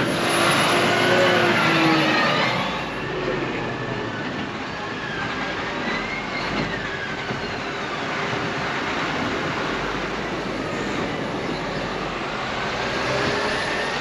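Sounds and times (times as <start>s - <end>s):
faint squeal: 0.0s - 8.6s, 10.6s - 14.0s
steel tracks clanking: 0.0s - 14.0s.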